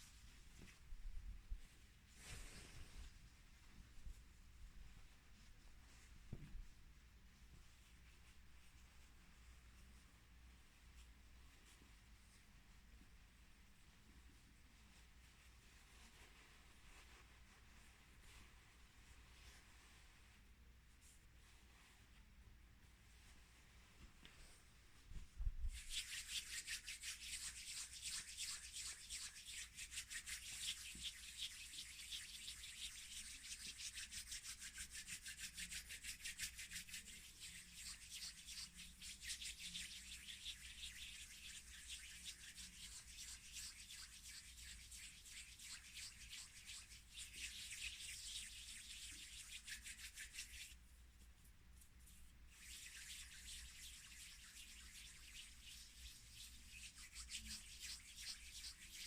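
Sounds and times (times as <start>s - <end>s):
fast scratchy rubbing: 25.6s - 50.8s, 52.0s - 59.0s.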